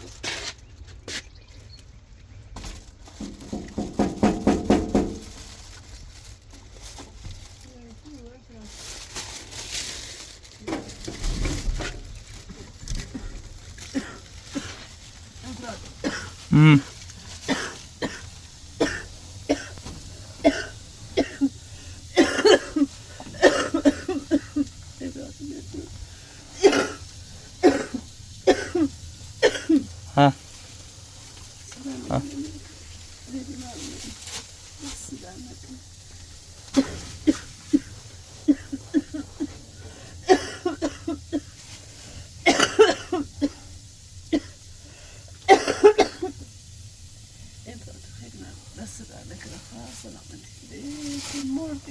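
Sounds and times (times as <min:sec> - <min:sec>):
woman coughing: 0:13.9 - 0:14.8, 0:15.7 - 0:19.8, 0:20.4 - 0:24.7, 0:26.6 - 0:29.9, 0:36.7 - 0:39.6, 0:40.2 - 0:41.4, 0:42.4 - 0:43.6, 0:45.5 - 0:46.4.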